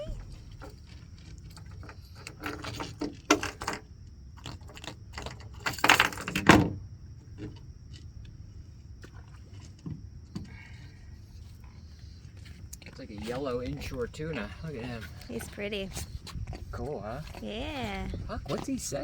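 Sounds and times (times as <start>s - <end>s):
knocks and rattles on a boat: 0.0s - 8.2s, 9.0s - 10.9s.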